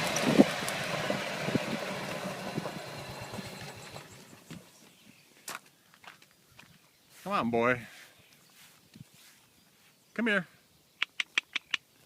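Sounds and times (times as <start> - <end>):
golf cart running: 0.0 - 5.0.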